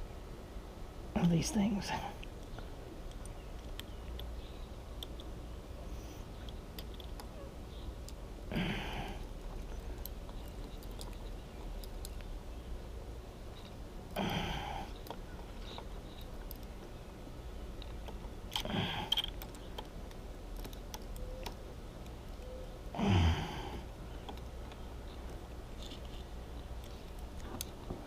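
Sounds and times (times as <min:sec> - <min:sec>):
man exhaling with a groan: 0:08.5 - 0:09.2, 0:14.2 - 0:14.9, 0:18.6 - 0:19.2, 0:23.0 - 0:23.9.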